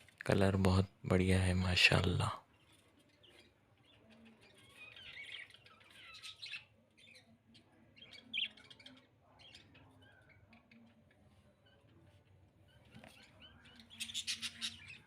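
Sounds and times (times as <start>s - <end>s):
budgerigars chattering and chirping: 3.2s - 12.0s, 12.7s - 15.0s.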